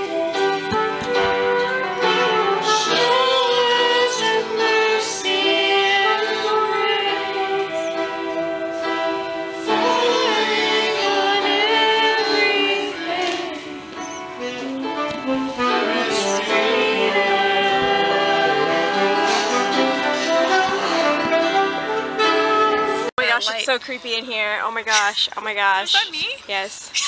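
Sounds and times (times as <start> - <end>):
sustained chords: 0.0 - 23.6
other voices singing: 1.0 - 23.1
woman singing: 2.0 - 8.2, 9.6 - 14.2, 15.6 - 21.4.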